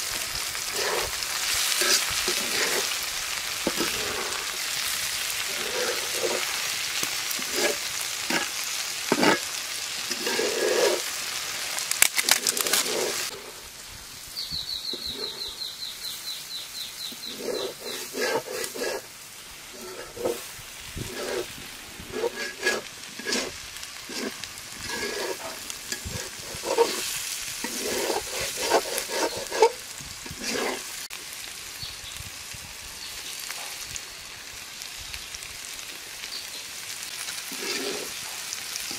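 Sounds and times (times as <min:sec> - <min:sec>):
okra sizzling in oil: 0:00.0 - 0:38.9
spatula scraping a pan: 0:00.4 - 0:11.4, 0:12.0 - 0:13.6, 0:14.9 - 0:15.5, 0:17.1 - 0:31.1, 0:37.3 - 0:38.9.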